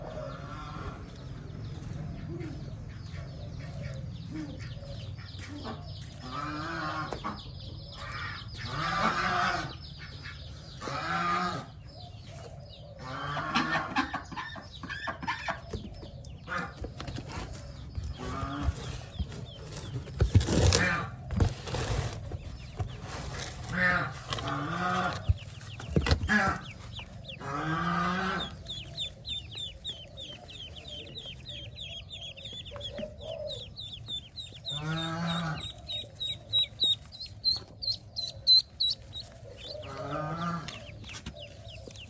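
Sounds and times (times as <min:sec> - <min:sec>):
poultry calling: 0:00.0 - 0:42.0
steady low hum: 0:24.2 - 0:42.0.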